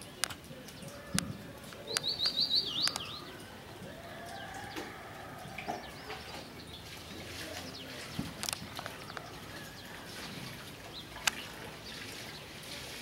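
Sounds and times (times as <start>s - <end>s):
bird chirps: 0.0s - 3.5s.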